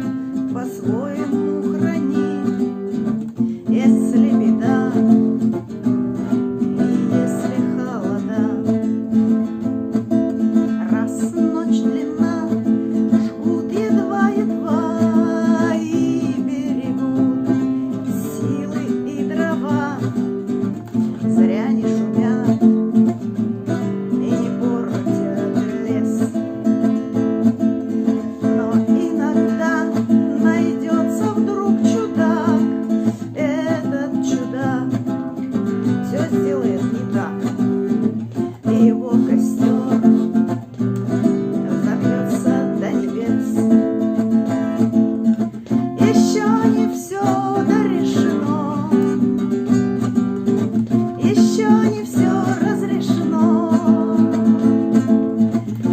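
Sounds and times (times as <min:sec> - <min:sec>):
acoustic guitar strumming: 0:00.0 - 0:55.9
woman singing: 0:00.0 - 0:55.9.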